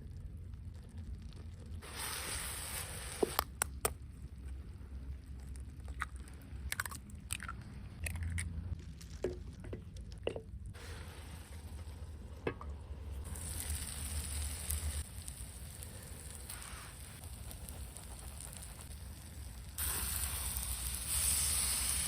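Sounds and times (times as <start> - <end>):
food clicks and crunches: 5.3 - 10.2
faint steady hiss: 10.6 - 22.0.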